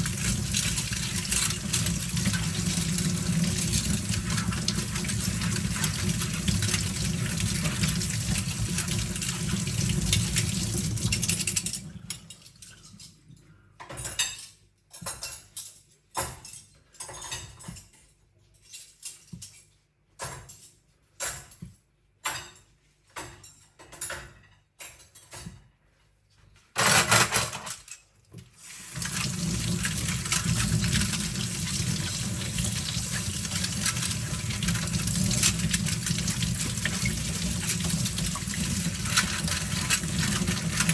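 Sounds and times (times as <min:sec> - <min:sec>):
kitchen tap running: 0:00.0 - 0:12.2, 0:28.4 - 0:40.9
cutlery clinking and rattling: 0:00.0 - 0:21.6, 0:22.2 - 0:25.6, 0:26.8 - 0:28.2, 0:28.8 - 0:40.9.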